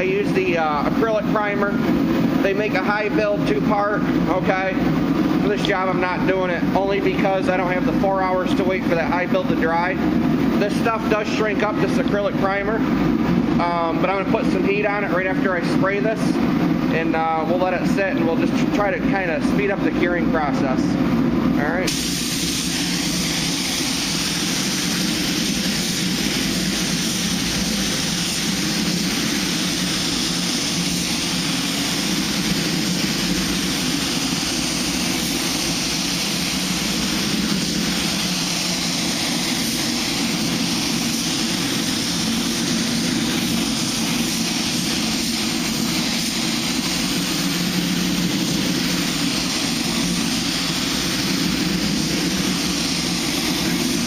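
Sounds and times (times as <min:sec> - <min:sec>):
paint spray gun hissing: 0:21.9 - 0:54.0.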